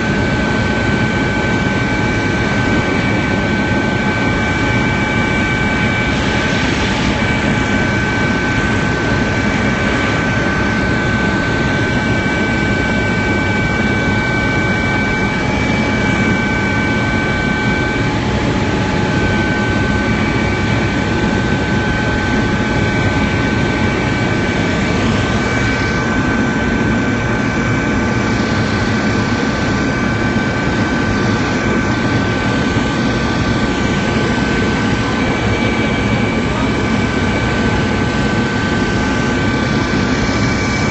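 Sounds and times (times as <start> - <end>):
high turbine whine: 0.0 - 40.9.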